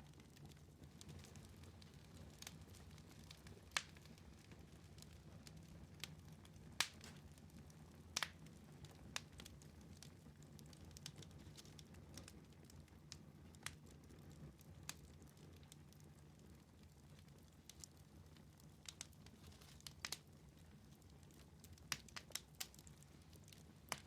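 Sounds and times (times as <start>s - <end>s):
wood fire crackling: 0.0s - 24.0s
sharp pops of fire: 6.8s - 7.3s.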